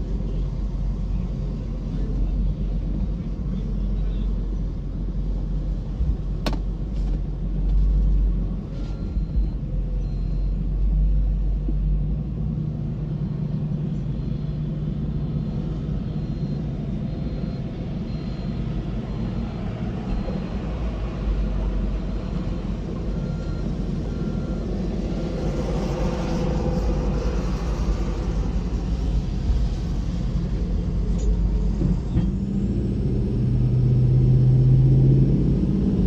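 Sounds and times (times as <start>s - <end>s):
truck engine running: 0.0s - 36.0s.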